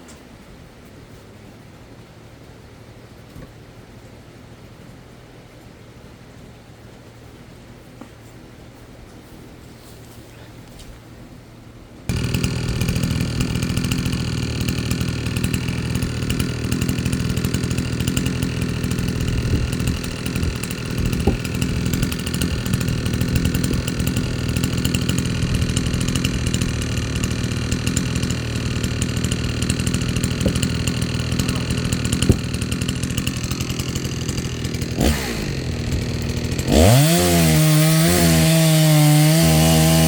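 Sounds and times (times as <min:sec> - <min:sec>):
chainsaw engine running: 0:12.1 - 0:40.0.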